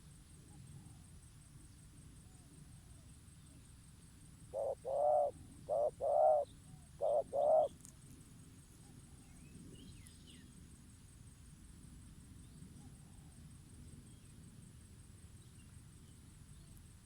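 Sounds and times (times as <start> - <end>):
dove cooing: 4.5 - 7.7.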